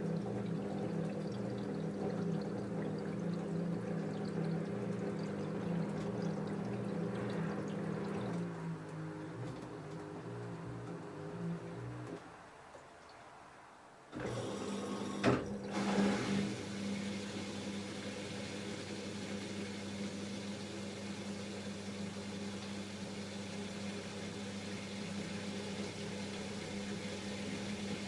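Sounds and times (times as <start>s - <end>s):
washing machine motor hum: 0.0s - 12.6s, 14.1s - 28.0s
washing machine starting with knock: 14.2s - 18.2s.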